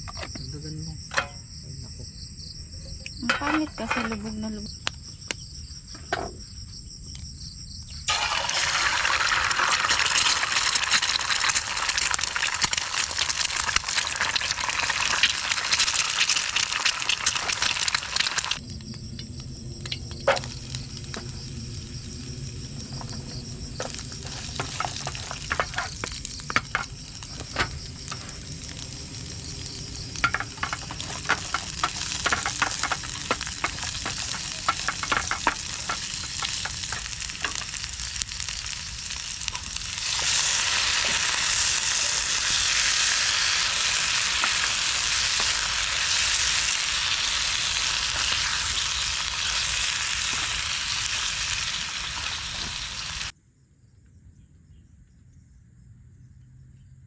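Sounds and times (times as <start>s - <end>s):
food sizzling in hot oil: 8.0s - 53.3s
oil popping and crackling: 8.0s - 53.3s.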